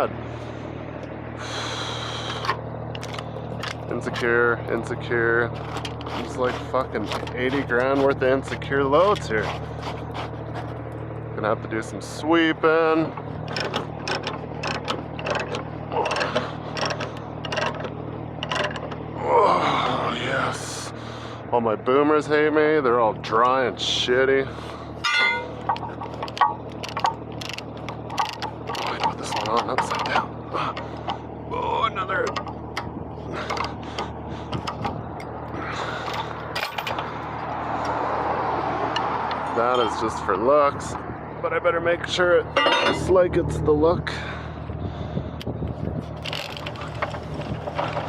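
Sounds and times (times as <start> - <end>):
truck engine idling: 0.0 - 48.0
ratchet binder clicking on chain: 13.5 - 19.0, 25.7 - 30.2, 46.2 - 48.0.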